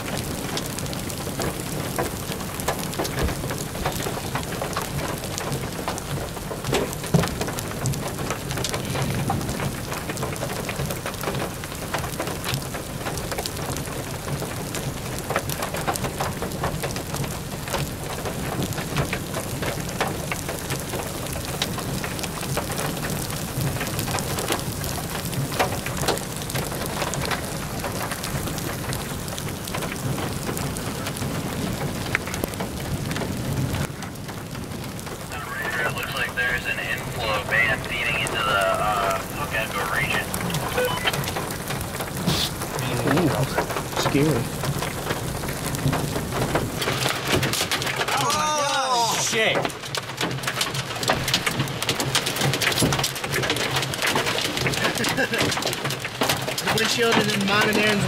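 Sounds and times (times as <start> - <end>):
rain on car roof: 0.0 - 58.0.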